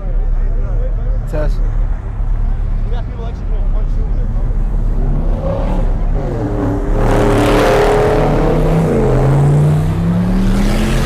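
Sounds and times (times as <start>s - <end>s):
car engine revving hard: 4.6s - 11.0s.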